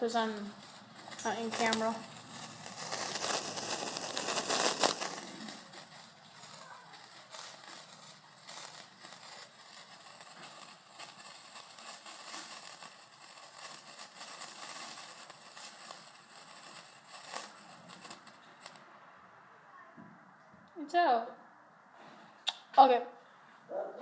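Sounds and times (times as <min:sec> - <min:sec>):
sparkler fizzing crackle: 0:00.0 - 0:18.9.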